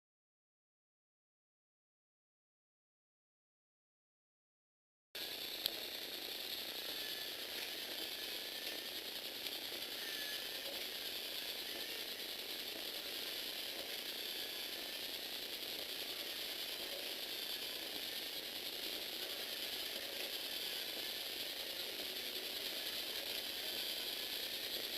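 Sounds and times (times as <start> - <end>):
plastic gears whirring and rattling: 5.2 - 24.9.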